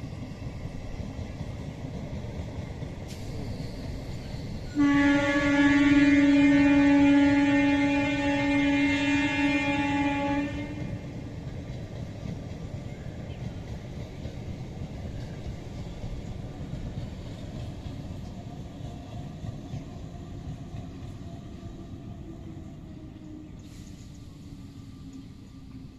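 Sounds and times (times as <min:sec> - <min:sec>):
train wheels rumbling on track: 0:00.0 - 0:25.9
train horn note: 0:04.7 - 0:11.2.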